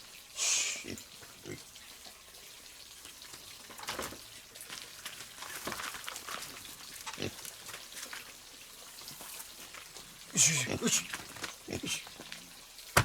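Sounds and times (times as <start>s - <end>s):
pigs grunting: 7.1s - 7.4s, 10.3s - 12.2s.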